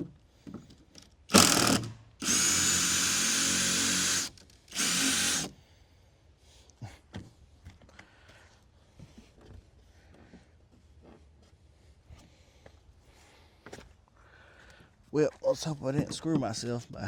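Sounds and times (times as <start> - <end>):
power drill backing out screw: 1.3 - 5.5.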